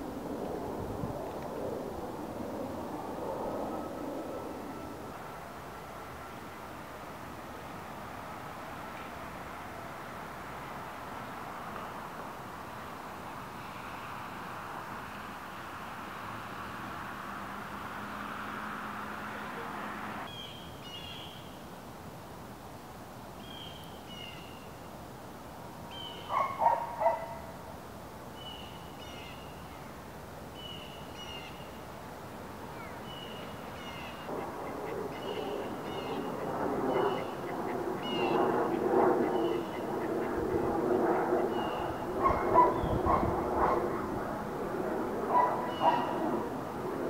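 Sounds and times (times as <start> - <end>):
background hum: 22.5 - 47.0
loud low bird calls: 32.8 - 40.7, 41.3 - 43.9, 45.4 - 46.4.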